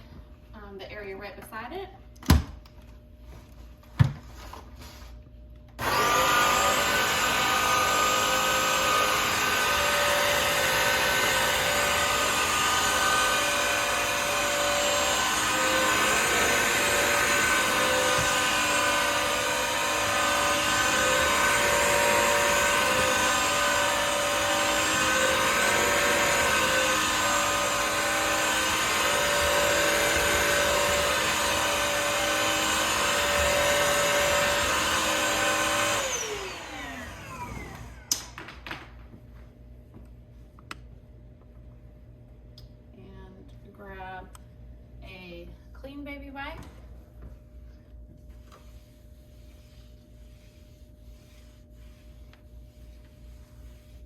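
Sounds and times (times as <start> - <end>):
wet-dry vacuum motor whine: 5.8 - 38.5.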